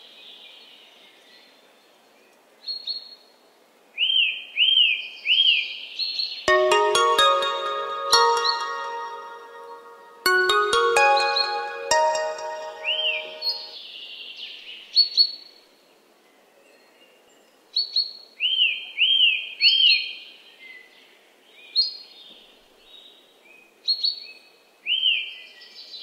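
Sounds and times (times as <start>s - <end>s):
musical chime: 6.5s - 13.8s.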